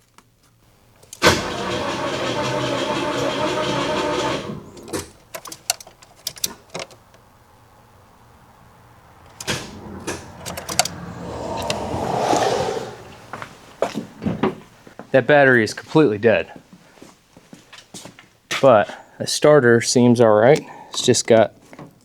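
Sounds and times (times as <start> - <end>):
starter motor cranking slowly: 1.1 - 5.1
short rushing noise: 9.2 - 14.2
sharp clicks: 9.3 - 11.0.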